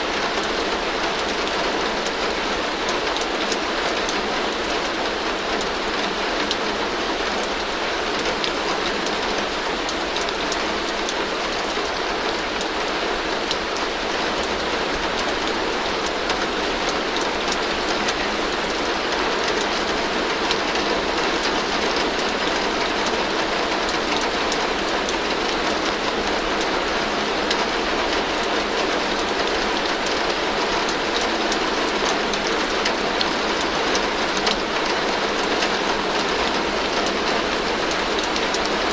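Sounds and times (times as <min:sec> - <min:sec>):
heavy rain on a tin roof: 0:00.0 - 0:38.9.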